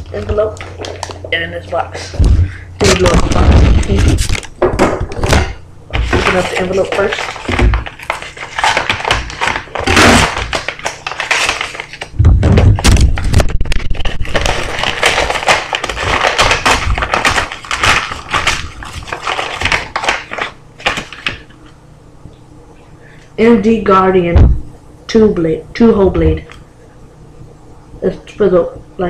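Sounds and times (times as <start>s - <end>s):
packaging crinkling and rustling: 0.0s - 21.8s
envelope tearing: 2.0s - 4.5s, 5.1s - 21.5s
heavy thumps: 2.1s - 6.2s, 12.1s - 14.0s.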